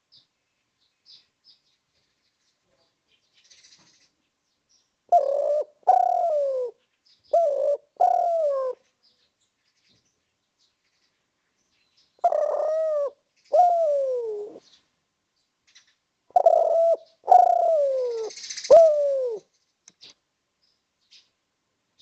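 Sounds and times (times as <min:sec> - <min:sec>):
dove cooing: 0:05.1 - 0:08.8, 0:12.2 - 0:14.7, 0:16.3 - 0:19.5.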